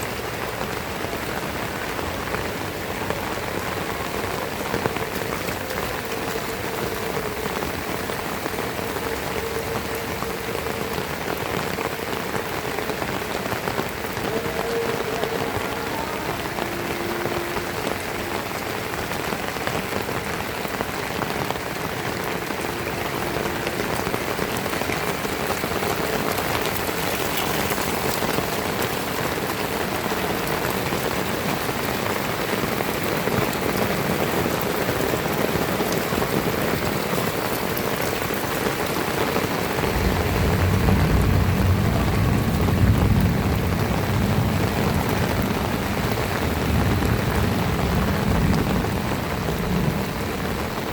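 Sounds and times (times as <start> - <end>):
heavy rain falling: 0.0 - 50.9
low rumble: 39.8 - 45.1.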